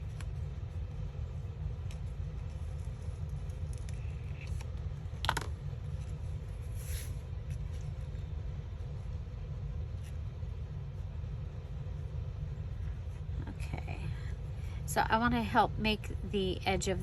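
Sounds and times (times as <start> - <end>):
low hum: 0.0 - 17.0
paper crackle: 1.8 - 4.9.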